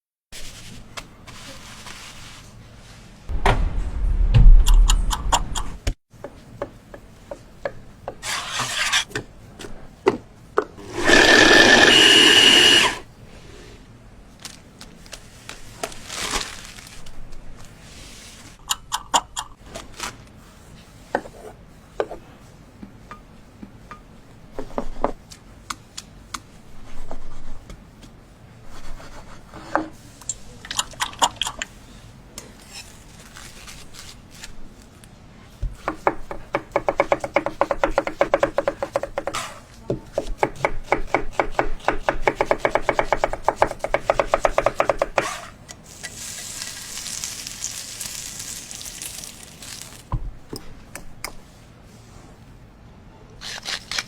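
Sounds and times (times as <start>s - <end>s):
rapid knife chopping: 35.8s - 39.6s, 40.2s - 45.4s.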